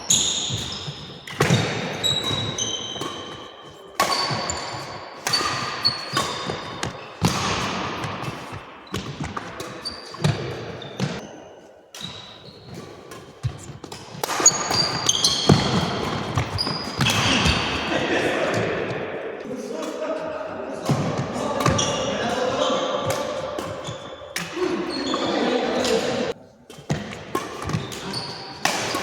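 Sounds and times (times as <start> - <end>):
sharp hits echoing in a hall: 14.0 - 29.0.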